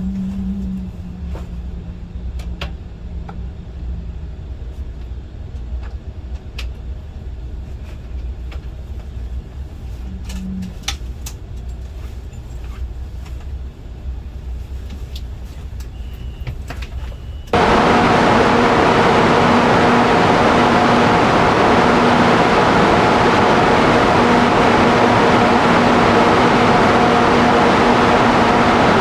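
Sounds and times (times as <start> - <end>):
train cabin rumble: 17.6 - 29.0.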